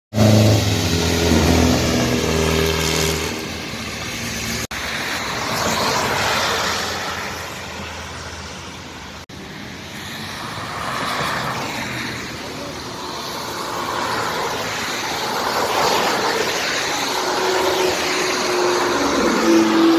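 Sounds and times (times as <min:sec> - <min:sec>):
tyres hissing on wet road: 0:00.2 - 0:19.9.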